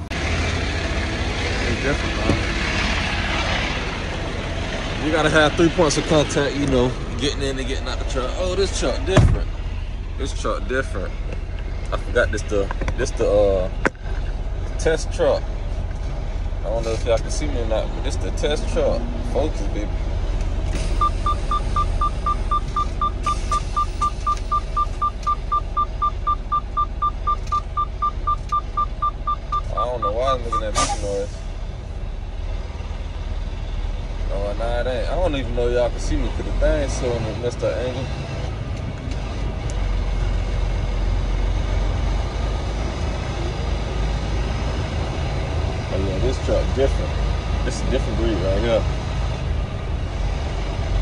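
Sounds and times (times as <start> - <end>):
diesel engine idling: 0.0 - 51.0
warning chime beeping: 21.0 - 30.8.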